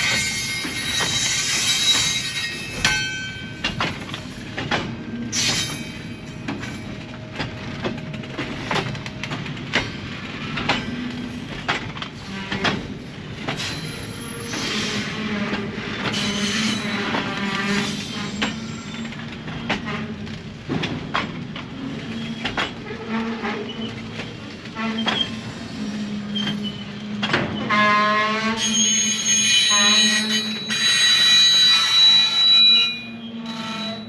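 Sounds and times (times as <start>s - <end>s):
train wheels clattering: 0.0s - 32.7s
train rumble: 0.0s - 34.0s
wheel squeals: 22.0s - 27.8s, 28.4s - 34.0s.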